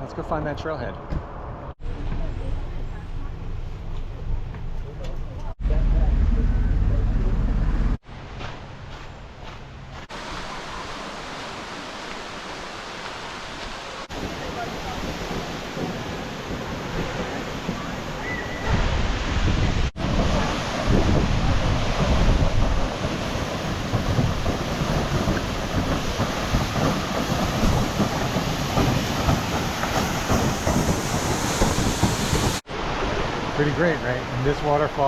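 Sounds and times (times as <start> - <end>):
waterfall rushing: 10.1 - 35.0.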